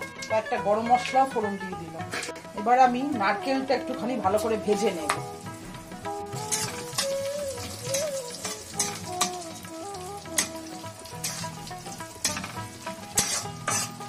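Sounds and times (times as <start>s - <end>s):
coconut sizzling in hot oil: 4.1s - 14.0s
spatula scraping pan: 11.2s - 14.0s.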